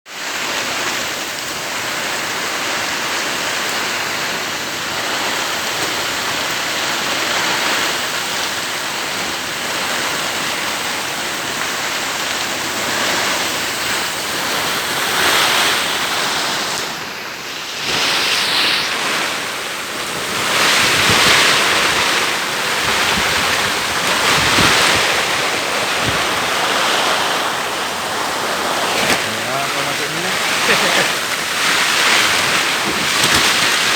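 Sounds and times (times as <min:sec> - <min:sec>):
heavy rain pouring: 0:00.1 - 0:33.9
strong wind gusts: 0:03.5 - 0:33.9
wind buffeting microphone: 0:17.8 - 0:33.9.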